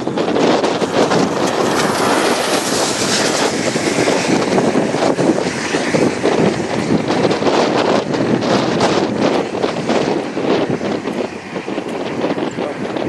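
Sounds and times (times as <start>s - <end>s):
storm wind on microphone: 0.0s - 13.0s.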